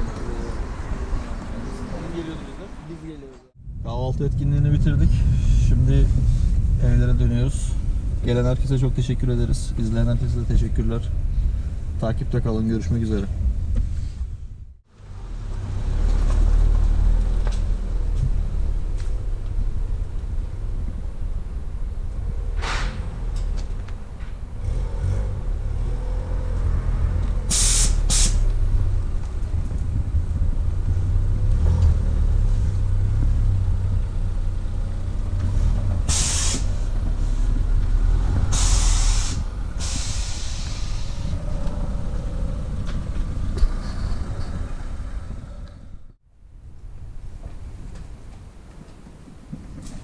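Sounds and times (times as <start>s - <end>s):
car engine rumbling: 0.0s - 50.0s
short sharp hisses: 27.5s - 28.5s, 36.1s - 36.8s, 38.5s - 41.2s.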